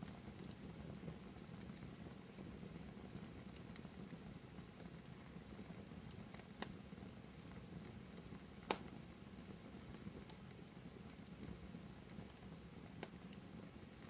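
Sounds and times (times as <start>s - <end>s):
fire crackling: 0.0s - 14.0s
sharp fire pops: 8.6s - 9.0s.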